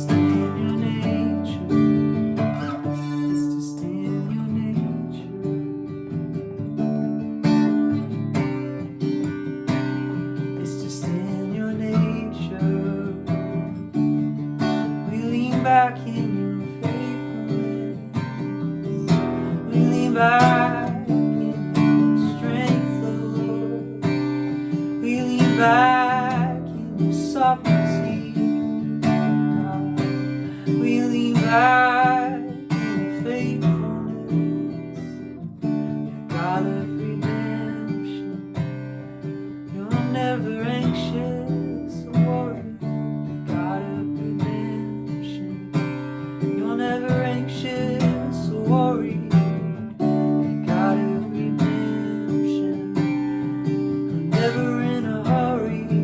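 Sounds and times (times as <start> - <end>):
person singing wordless phrases: 0.0 - 1.8, 2.9 - 5.6, 10.5 - 13.7, 15.0 - 35.3, 36.3 - 38.5, 39.7 - 42.8, 46.5 - 49.8, 50.6 - 53.3, 54.2 - 56.0
acoustic guitar strumming: 0.0 - 56.0.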